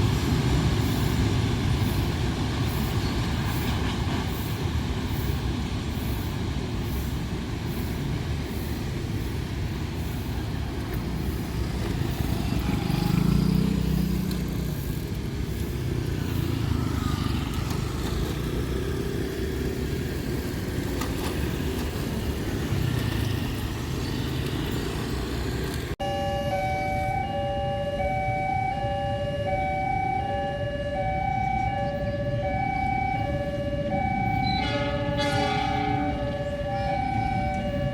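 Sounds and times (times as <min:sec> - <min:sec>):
passing train rumble: 0:00.0 - 0:27.3, 0:27.9 - 0:37.9
two-tone electronic warning signal: 0:26.0 - 0:37.9.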